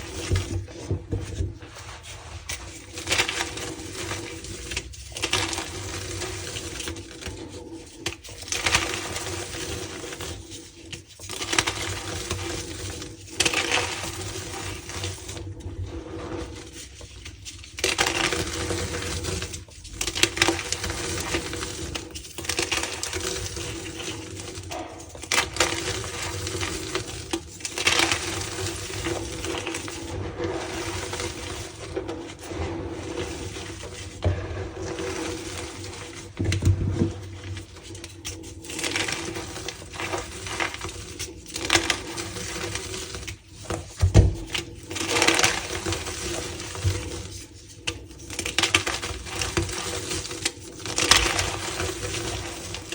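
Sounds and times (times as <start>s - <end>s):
chalk blocks crunching: 0.0s - 52.9s.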